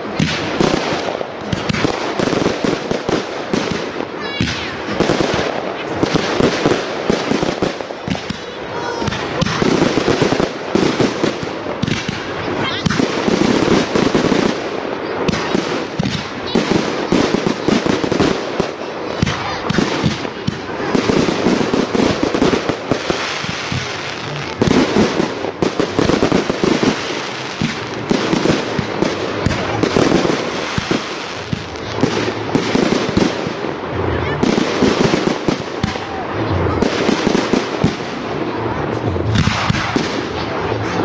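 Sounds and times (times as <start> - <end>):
fireworks crackling: 0.0 - 41.0
fireworks launching and bursting: 0.0 - 41.0.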